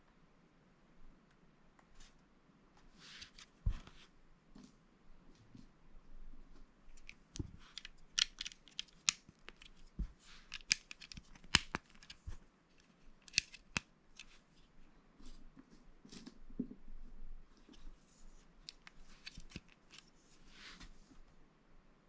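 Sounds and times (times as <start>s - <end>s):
plastic bricks clicking together: 7.0s - 9.8s, 10.5s - 12.2s, 13.2s - 13.8s.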